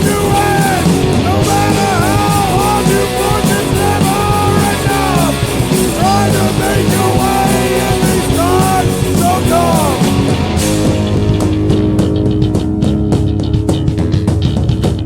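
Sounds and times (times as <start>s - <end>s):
punk rock band playing: 0.0s - 15.0s.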